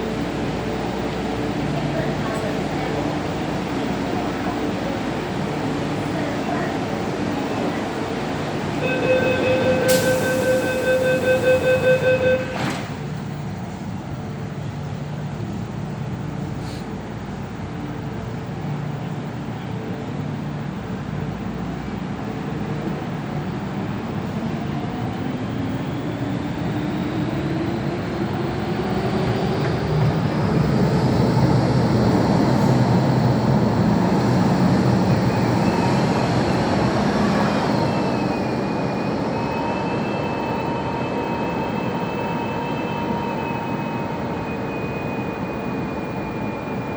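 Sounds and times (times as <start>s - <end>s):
train wheels rumbling on track: 0.0s - 46.9s
high-pitched tones: 8.8s - 12.6s.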